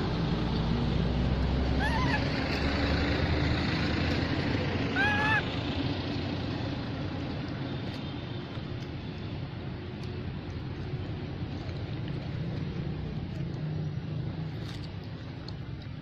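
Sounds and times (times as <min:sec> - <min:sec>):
baby monkey crying calls: 0:01.7 - 0:02.4, 0:04.9 - 0:05.6.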